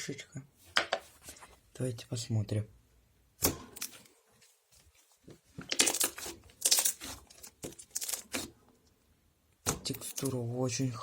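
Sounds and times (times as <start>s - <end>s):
slime squishing: 5.3s - 8.7s.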